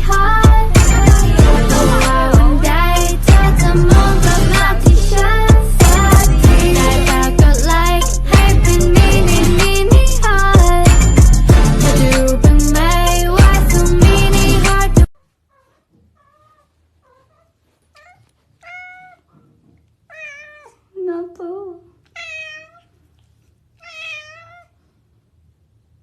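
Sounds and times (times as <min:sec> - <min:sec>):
music: 0:00.0 - 0:15.1
kitten meowing: 0:18.0 - 0:19.2, 0:20.1 - 0:20.8, 0:22.1 - 0:22.9, 0:23.8 - 0:24.7.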